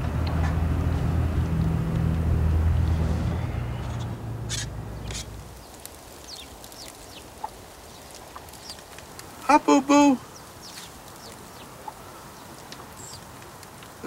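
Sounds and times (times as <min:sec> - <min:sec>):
vehicle engine rumble: 0:00.0 - 0:09.4
bird calls and chirps: 0:03.8 - 0:08.8, 0:10.2 - 0:13.3.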